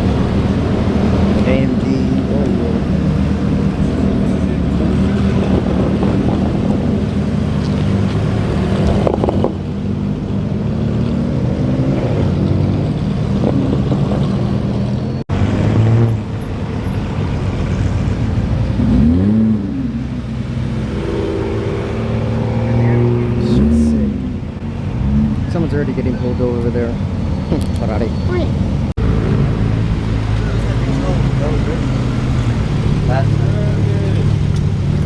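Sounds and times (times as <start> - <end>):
car engines running: 0.0 - 35.0
engine revving: 0.0 - 35.0.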